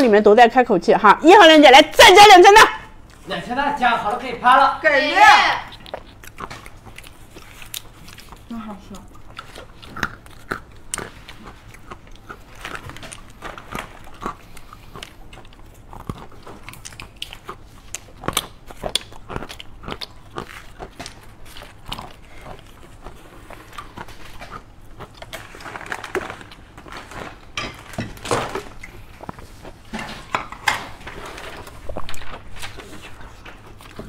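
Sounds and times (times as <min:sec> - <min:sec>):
person crunching nuts: 0:05.7 - 0:27.6.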